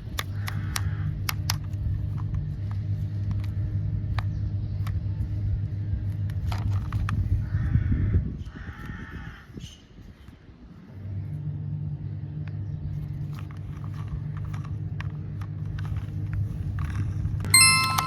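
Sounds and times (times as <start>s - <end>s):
toy vehicle engine rumble: 0.0s - 7.5s, 12.6s - 18.0s.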